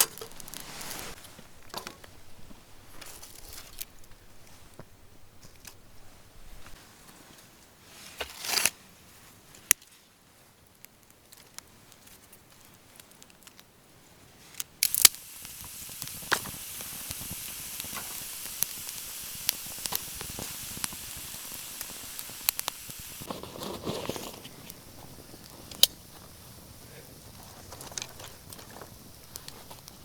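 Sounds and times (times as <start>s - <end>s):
sharp clicks: 14.8s - 23.3s
steady high hiss: 14.8s - 30.0s.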